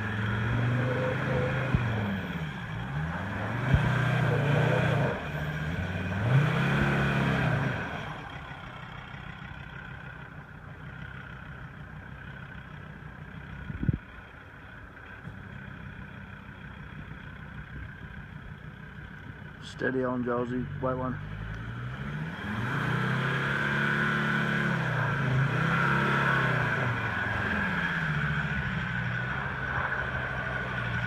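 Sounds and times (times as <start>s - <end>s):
engine revving: 0.0s - 9.2s, 20.0s - 31.0s.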